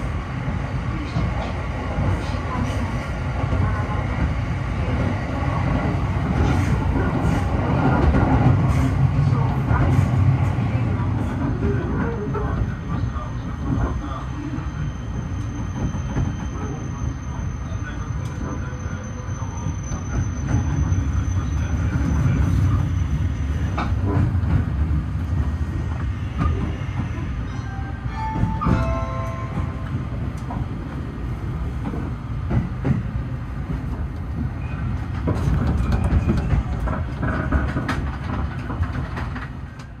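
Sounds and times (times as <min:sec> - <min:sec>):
train running gear rumble: 0:00.0 - 0:40.0
brief wheel squeal: 0:14.7 - 0:23.2.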